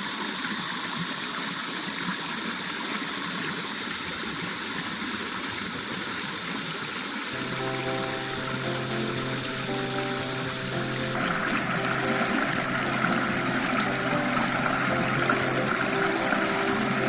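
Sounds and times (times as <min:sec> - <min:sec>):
stream water running: 0:00.0 - 0:17.0
music with low tones: 0:07.4 - 0:17.0.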